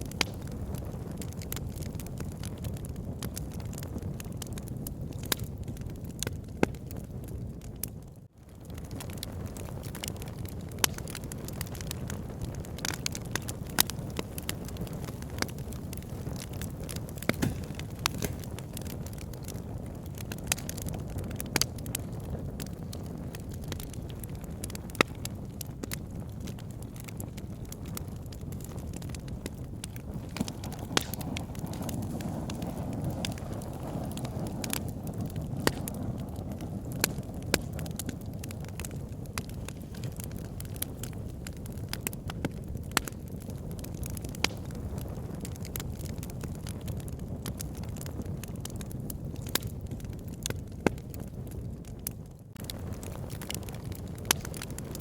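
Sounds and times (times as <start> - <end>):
logs crackling and popping: 0.0 - 55.0
low rush of flame: 0.0 - 55.0.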